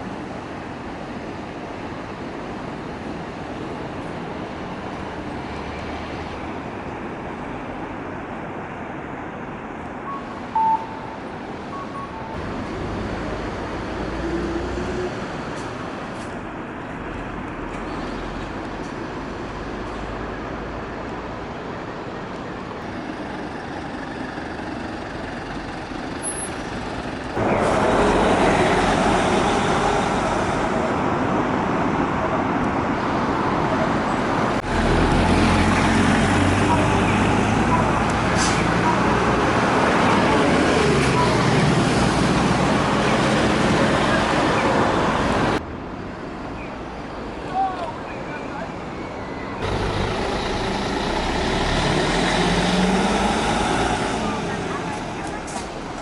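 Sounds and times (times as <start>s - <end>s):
road traffic noise: 0.0s - 56.0s
short beep: 10.1s - 12.4s.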